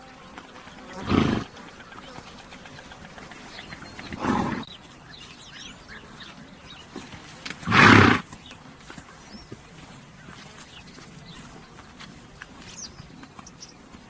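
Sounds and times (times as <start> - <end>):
horse snorting: 0.9 - 1.6, 2.5 - 4.7, 6.9 - 8.4.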